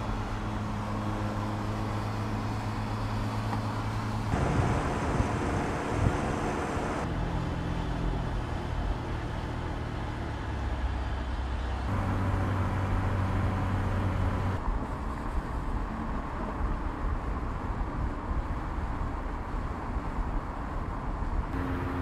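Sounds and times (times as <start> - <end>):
road and tyre noise: 0.0 - 22.0
car engine running: 2.6 - 7.1, 11.9 - 14.6, 21.6 - 22.0.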